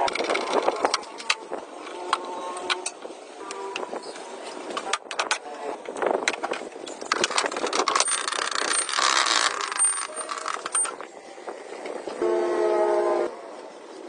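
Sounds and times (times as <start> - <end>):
metal scraping: 6.6 - 13.3
metal tools clinking: 6.9 - 11.0.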